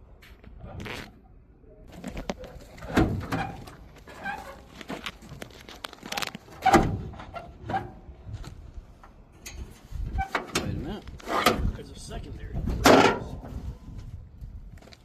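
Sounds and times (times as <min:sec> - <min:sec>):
metal clunks and knocks: 0:02.3 - 0:04.2, 0:12.6 - 0:13.5.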